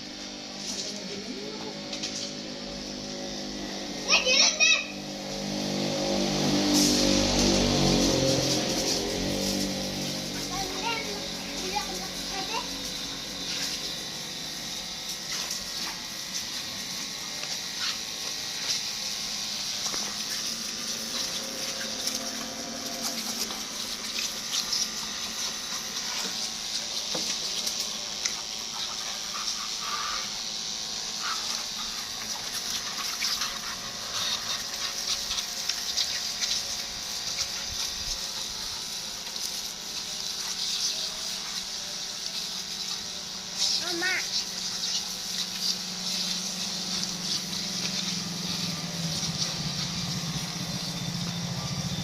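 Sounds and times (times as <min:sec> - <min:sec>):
water spraying: 0:00.0 - 0:52.0.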